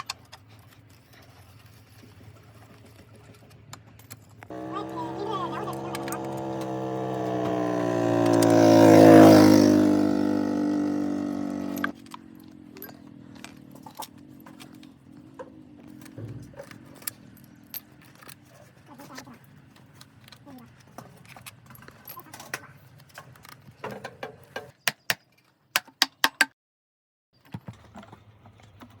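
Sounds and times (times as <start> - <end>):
vehicle engine driving past: 4.5 - 12.0
hand tools tapping on metal: 10.2 - 17.1.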